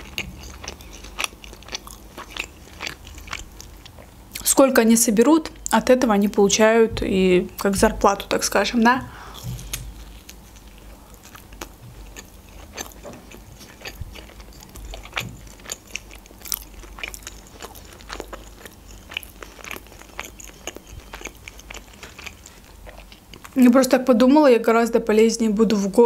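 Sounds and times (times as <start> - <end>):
woman chewing pizza crust: 0.0 - 4.5, 9.2 - 23.6.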